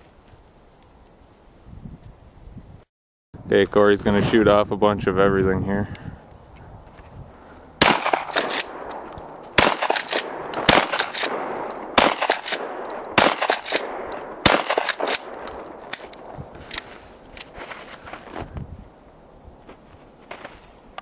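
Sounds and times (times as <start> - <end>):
shotgun shots: 7.8 - 16.0.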